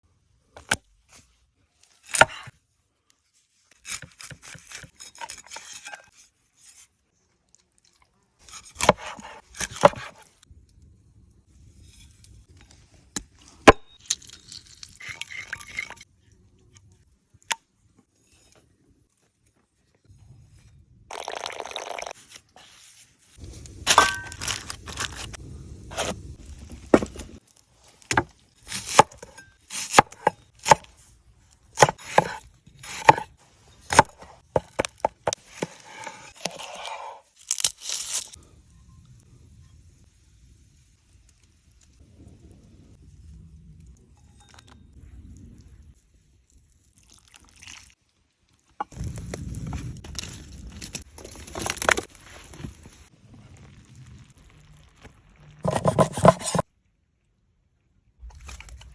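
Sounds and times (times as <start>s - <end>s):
scraping and rustling: 55.6s - 56.6s.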